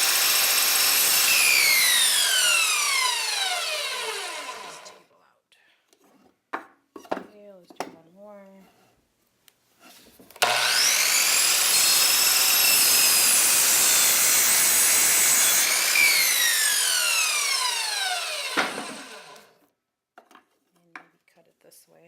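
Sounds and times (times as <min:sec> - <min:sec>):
motor winding down whine: 0:00.0 - 0:05.0, 0:10.4 - 0:19.5
power saw cutting wood: 0:00.0 - 0:05.0, 0:10.4 - 0:19.6.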